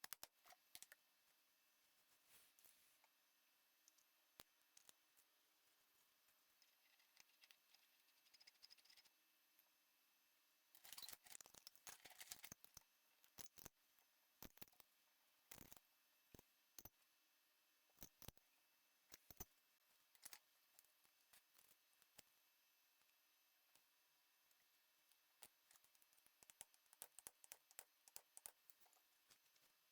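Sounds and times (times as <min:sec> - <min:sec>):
small parts clicking and rattling: 0:00.0 - 0:01.0, 0:10.7 - 0:13.8, 0:14.4 - 0:14.9, 0:15.5 - 0:15.8, 0:18.0 - 0:18.4, 0:19.1 - 0:19.5, 0:20.1 - 0:22.3, 0:25.4 - 0:29.9.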